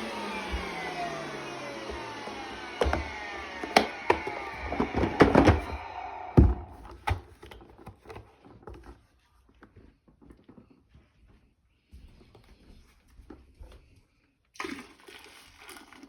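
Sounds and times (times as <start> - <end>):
vacuum motor winding down: 0.0 - 6.9.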